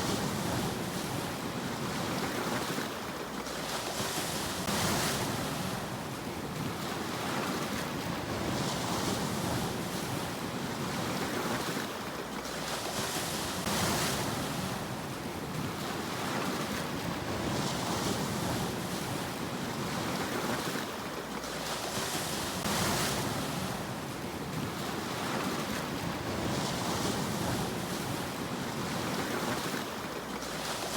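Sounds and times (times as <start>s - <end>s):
waves breaking on shore: 0.0s - 30.9s.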